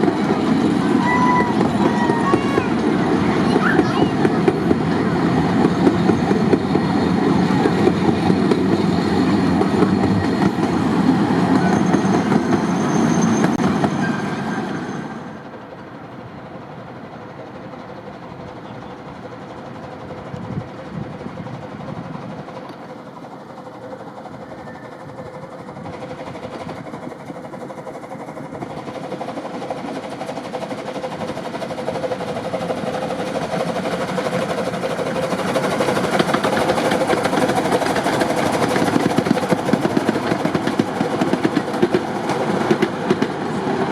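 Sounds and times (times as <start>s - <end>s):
miniature train wheel rumble: 0.0s - 43.9s
high wheel squeals: 0.2s - 15.5s, 24.3s - 25.3s.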